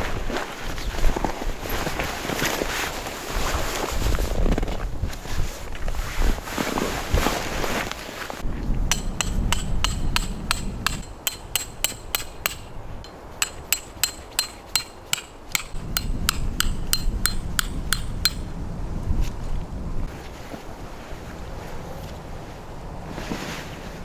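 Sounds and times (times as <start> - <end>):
wind rumble on microphone: 0.0 - 13.8, 15.5 - 24.0
hammer striking metal tent pegs: 8.9 - 18.6.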